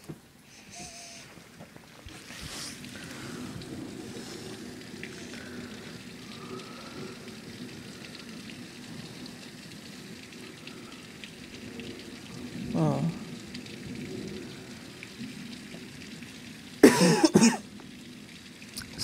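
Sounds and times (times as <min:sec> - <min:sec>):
steady rain falling: 0:00.0 - 0:19.0
sharp water drips: 0:00.5 - 0:19.0.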